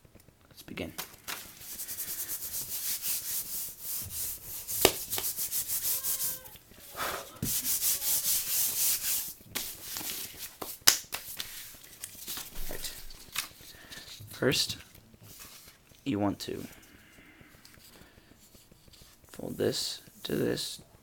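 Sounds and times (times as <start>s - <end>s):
quick rubbing on paper: 1.5s - 6.5s, 7.4s - 10.5s
paper being folded: 7.4s - 16.0s
paper crackles: 9.5s - 16.7s.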